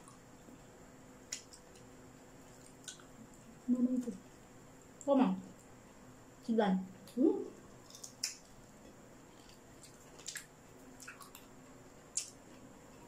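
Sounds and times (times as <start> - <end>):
wet chewing smacks and clicks: 1.3 - 3.4, 7.7 - 8.6, 9.3 - 13.0.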